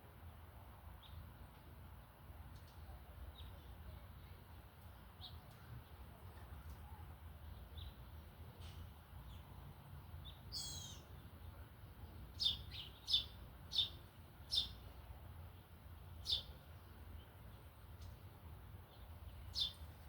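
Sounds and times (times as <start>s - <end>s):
songbird warbling call: 10.5s - 11.1s.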